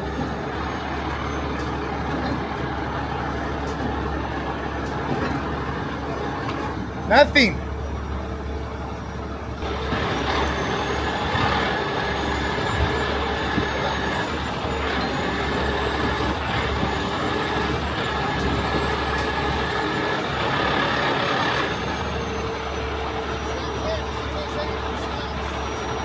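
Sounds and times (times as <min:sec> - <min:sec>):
diesel engine hum: 0:00.0 - 0:26.0
hydraulic whine: 0:07.8 - 0:26.0.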